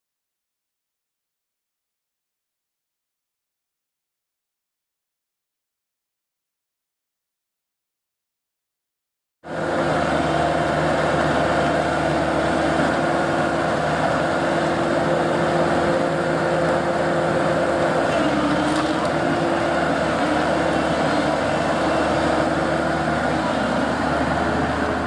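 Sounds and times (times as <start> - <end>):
excavator engine and hydraulics: 9.5 - 25.0.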